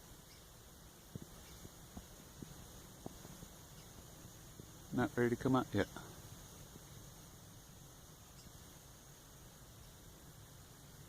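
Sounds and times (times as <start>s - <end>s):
quiet steady hiss: 0.0s - 11.0s
woodpecker tapping: 0.2s - 4.8s.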